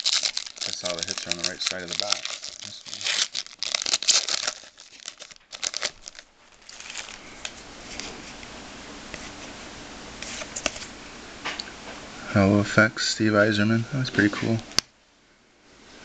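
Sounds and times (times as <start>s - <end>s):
steady hiss: 0.0s - 3.3s
foil wrapper crinkling and tearing: 0.0s - 8.1s.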